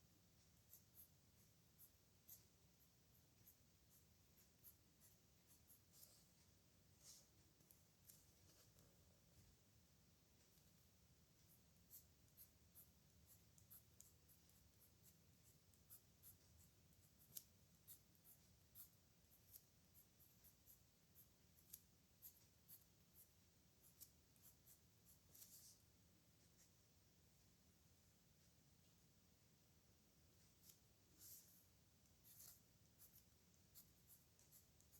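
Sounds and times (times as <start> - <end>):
pen scratching on paper: 0.5 - 8.7, 11.4 - 25.8, 30.6 - 34.9.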